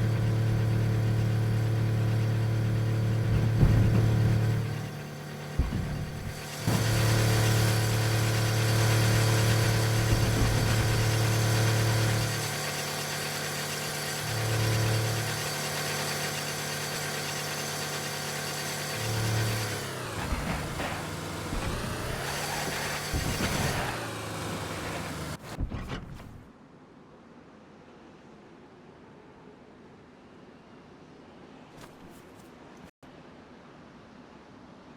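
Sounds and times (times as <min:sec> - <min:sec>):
car engine droning hum: 0:00.0 - 0:26.4.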